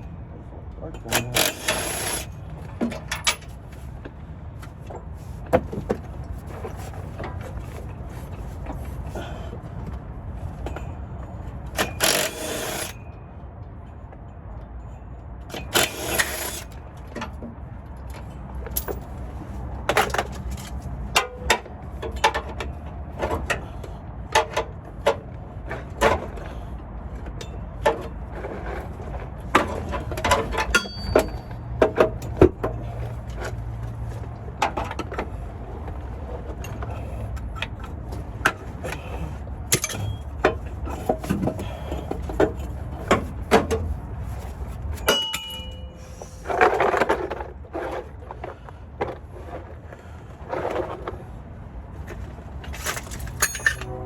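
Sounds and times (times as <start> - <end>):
metallic clinks of hand tools: 30.7 - 31.5, 45.0 - 46.0, 53.0 - 53.9.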